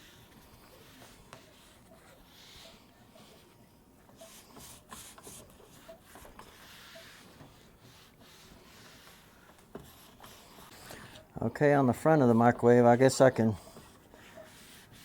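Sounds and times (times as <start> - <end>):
cloth rubbing on panel: 4.1 - 11.2, 13.5 - 15.0.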